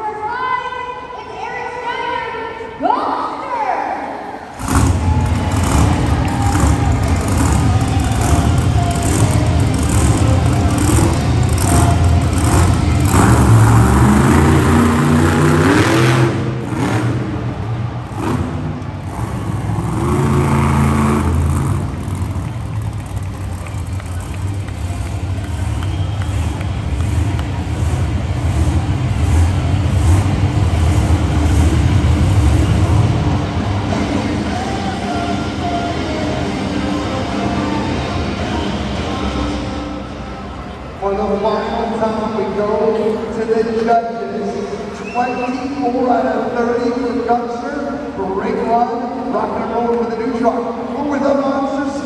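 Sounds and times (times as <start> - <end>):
truck engine revving hard: 4.4 - 41.0.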